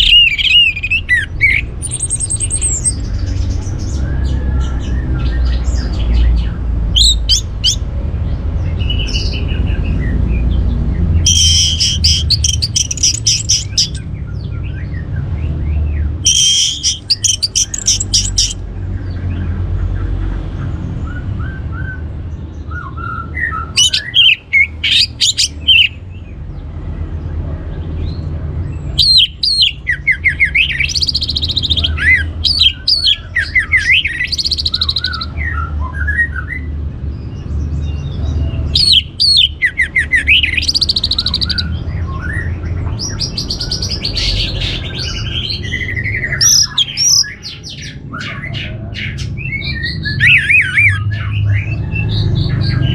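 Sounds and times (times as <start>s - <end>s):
harsh squawk-like bird notes: 0.0s - 7.9s, 11.2s - 14.1s, 16.2s - 18.6s, 22.8s - 26.0s, 28.9s - 36.6s, 38.6s - 52.9s
thrush singing: 0.0s - 7.9s, 11.0s - 14.1s, 16.2s - 18.6s, 23.5s - 26.0s, 29.0s - 35.6s, 38.8s - 52.9s.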